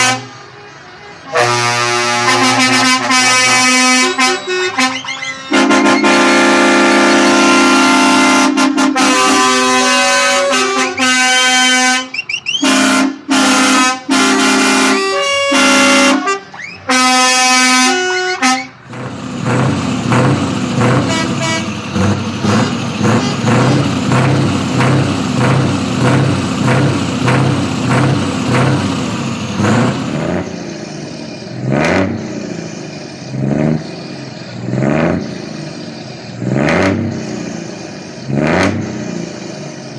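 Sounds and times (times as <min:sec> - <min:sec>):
truck air horn blasts: 0:00.0 - 0:30.4.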